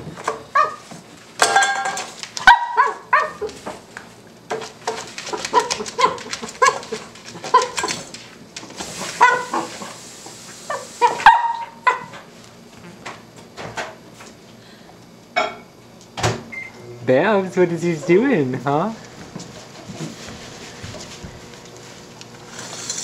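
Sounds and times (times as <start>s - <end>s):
puppy yapping: 0.6s - 0.8s, 2.4s - 3.5s, 5.3s - 8.0s, 9.2s - 9.7s, 10.7s - 12.1s.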